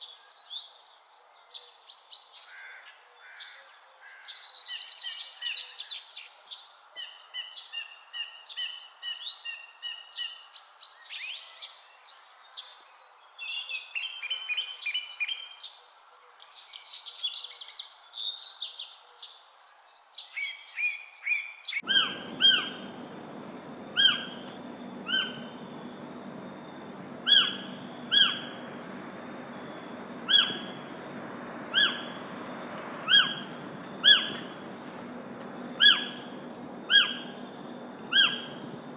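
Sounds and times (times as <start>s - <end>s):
background hiss: 21.8s - 38.9s
sharp downward bird call: 21.8s - 38.9s
songbirds singing: 21.8s - 38.9s.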